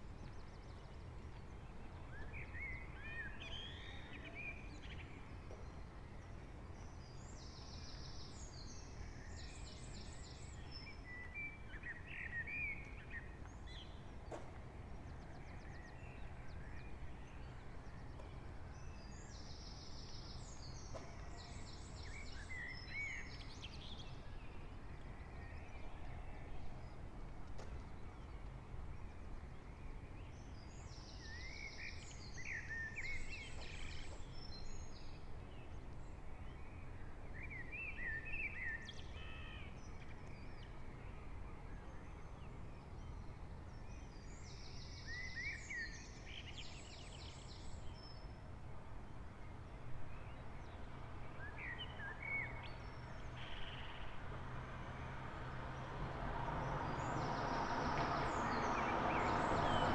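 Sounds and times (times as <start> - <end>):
songbird singing trills: 0.0 - 27.0, 27.6 - 48.4, 49.5 - 54.2
low town hum: 0.0 - 59.9
vehicle approaching: 52.8 - 59.9.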